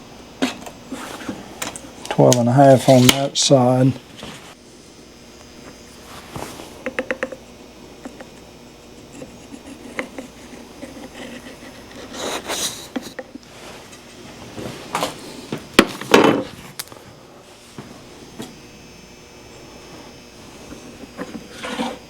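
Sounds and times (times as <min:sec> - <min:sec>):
workpiece sliding and rubbing: 0:00.9 - 0:01.6, 0:04.1 - 0:04.6, 0:05.9 - 0:07.4, 0:09.2 - 0:16.7, 0:19.7 - 0:22.0.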